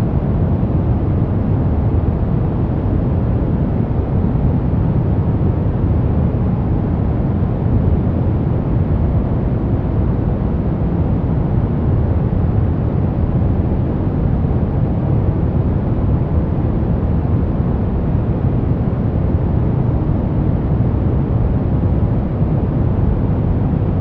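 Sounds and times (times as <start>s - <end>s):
deep white noise rush: 0.0s - 24.0s.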